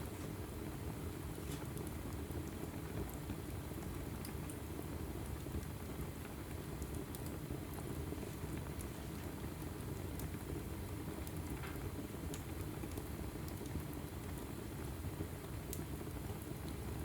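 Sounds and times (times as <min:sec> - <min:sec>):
fire rumbling: 0:00.0 - 0:17.0.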